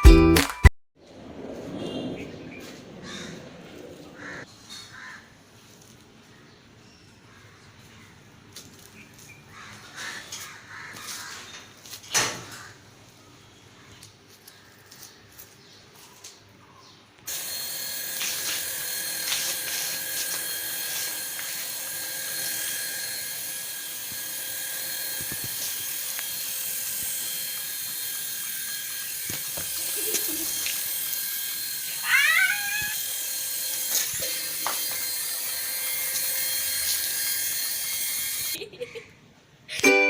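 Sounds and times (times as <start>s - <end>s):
toy helicopter motor whirring: 17.3s - 38.6s.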